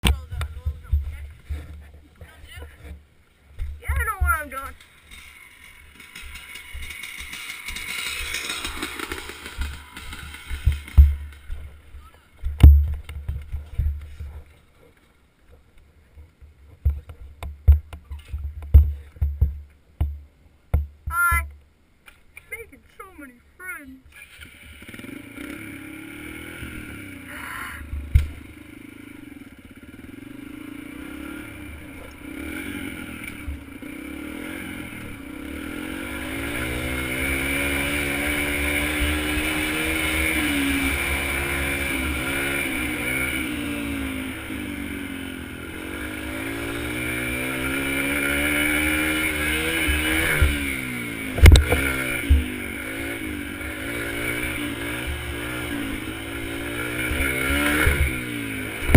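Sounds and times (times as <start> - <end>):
sharp thumps: 2.7 - 14.4, 27.8 - 28.5, 46.1 - 53.2, 53.9 - 58.9
dirt bike engine revving: 3.6 - 13.5, 24.1 - 58.9.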